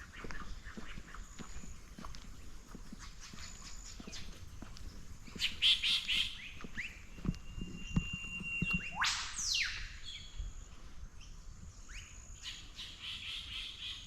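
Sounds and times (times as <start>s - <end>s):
harsh bird calls: 0.0s - 10.4s
wild birds chirping: 0.0s - 14.0s.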